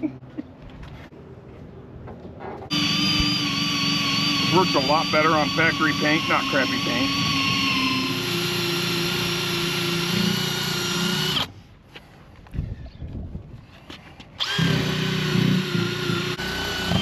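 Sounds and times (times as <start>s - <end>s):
drill whining: 2.7s - 11.5s, 14.4s - 17.0s.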